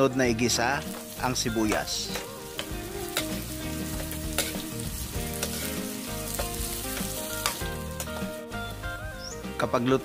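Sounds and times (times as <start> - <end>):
onion and garlic sizzling: 0.0 - 10.0
metal ladle clicking on pan: 4.4 - 4.6.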